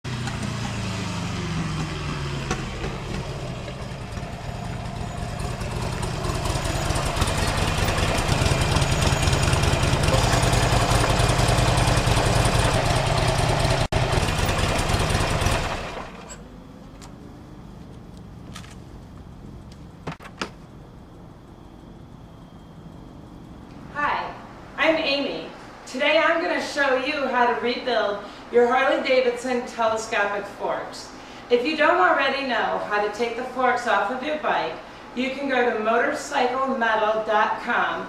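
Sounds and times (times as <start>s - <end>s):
motorcycle engine running: 0.0s - 20.2s.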